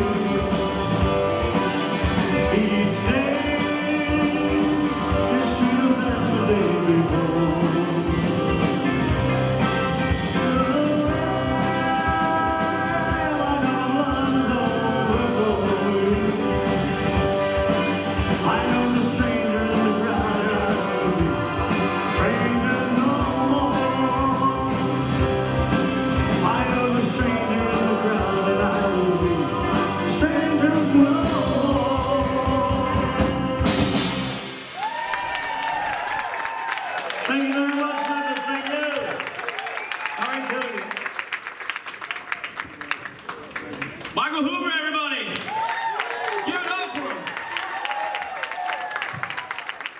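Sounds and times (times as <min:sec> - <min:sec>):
person singing: 0:00.0 - 0:34.6
live rock band playing: 0:00.0 - 0:36.1.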